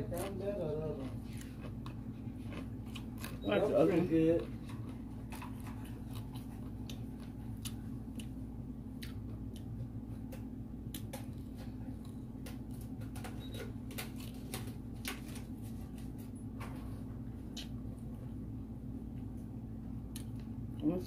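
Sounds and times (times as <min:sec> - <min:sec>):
steady low hum: 0:00.0 - 0:21.0
wet chewing clicks and smacks: 0:01.0 - 0:03.5, 0:04.4 - 0:15.4, 0:17.4 - 0:18.1, 0:20.1 - 0:20.9.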